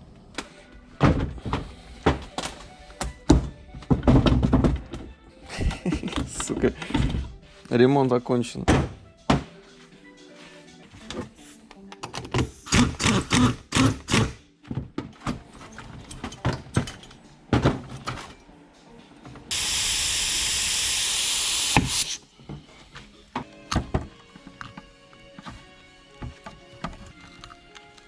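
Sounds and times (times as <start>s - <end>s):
steady hiss: 19.5s - 22.2s.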